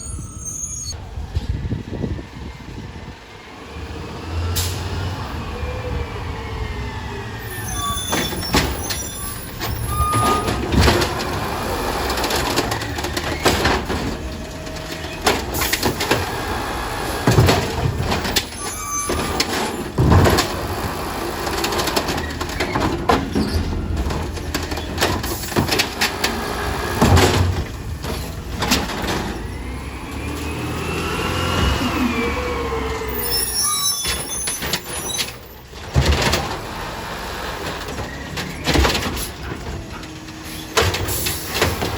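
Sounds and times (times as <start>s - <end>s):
garbage truck engine running: 1.0s - 33.4s, 34.2s - 41.9s
bangs and clanks: 8.0s - 16.5s, 17.1s - 29.4s, 34.0s - 36.9s, 37.6s - 41.9s.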